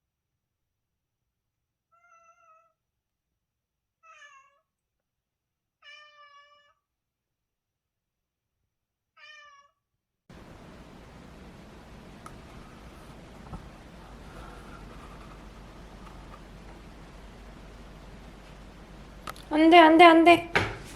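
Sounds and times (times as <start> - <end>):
cat meowing: 1.9 - 2.8, 4.0 - 4.7, 5.8 - 6.8, 9.2 - 9.8.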